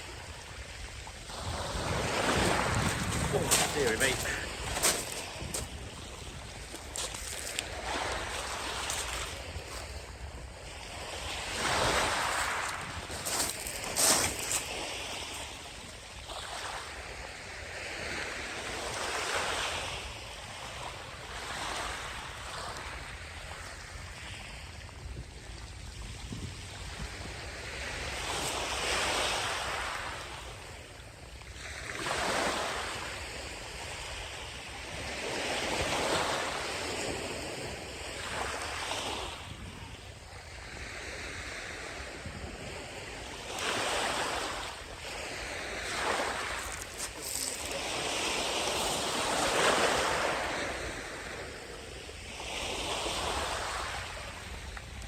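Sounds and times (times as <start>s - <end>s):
wind rumble on microphone: 0.0s - 10.5s, 23.3s - 28.2s
small waves breaking on beach: 0.0s - 55.0s.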